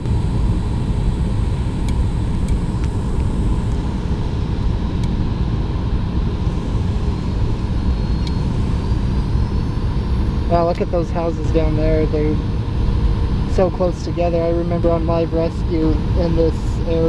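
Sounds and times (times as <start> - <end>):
airliner cabin engine rumble: 0.0 - 17.0
faint steady whine: 0.0 - 17.0.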